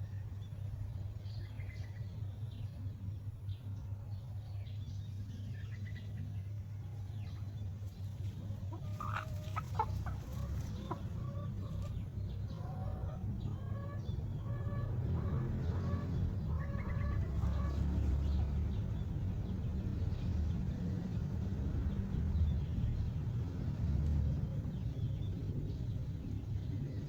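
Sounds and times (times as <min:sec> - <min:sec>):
steady low rumble: 0:00.0 - 0:27.0
chickens clucking: 0:07.8 - 0:18.9.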